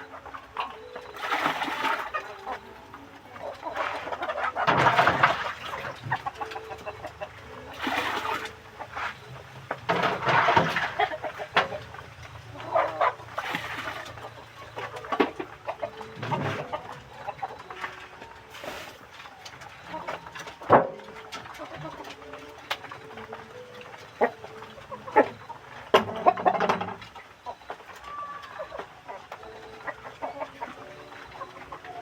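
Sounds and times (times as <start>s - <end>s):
chickens clucking and squawking: 0.0s - 32.0s
loud chicken calling: 27.4s - 32.0s.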